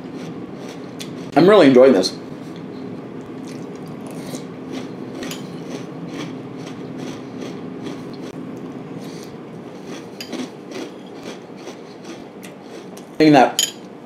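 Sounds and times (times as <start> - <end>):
steady low hum: 0.0 - 14.0
crunchy cereal chewing: 3.5 - 8.4, 9.8 - 13.1.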